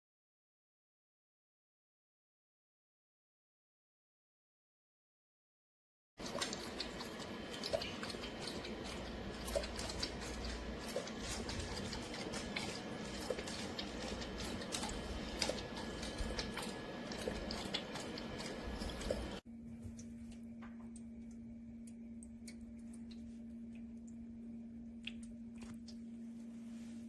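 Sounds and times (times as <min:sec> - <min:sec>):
dog lapping water: 0:06.2 - 0:19.4
trickling water: 0:06.2 - 0:19.4
steady low hum: 0:06.2 - 0:27.0.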